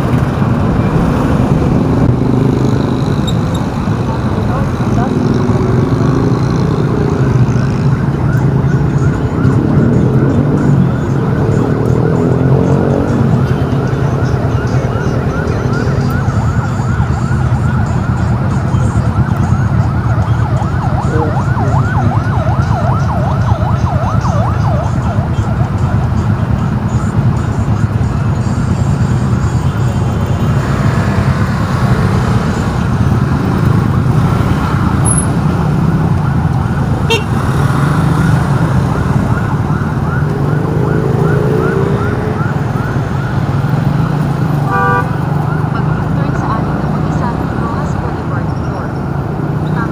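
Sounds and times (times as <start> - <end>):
emergency vehicle siren yelping: 0.0 - 49.9
rumble of traffic: 0.0 - 49.9.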